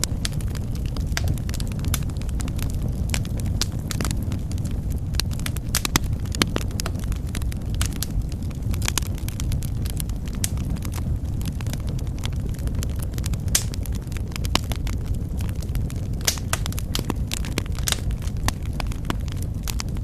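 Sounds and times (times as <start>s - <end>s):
burning wood popping and crackling: 0.0s - 20.0s
fire flames rumbling: 0.0s - 20.0s.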